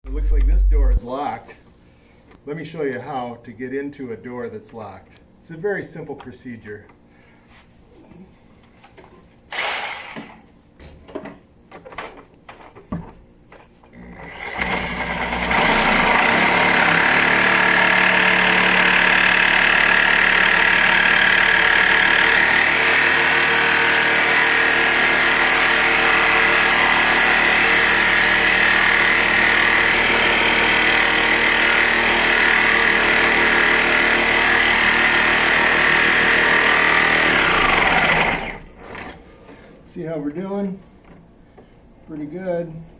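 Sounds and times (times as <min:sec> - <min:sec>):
knocks and clicks: 0:00.0 - 0:01.0
power tool running under load: 0:09.5 - 0:10.4, 0:14.0 - 0:39.2.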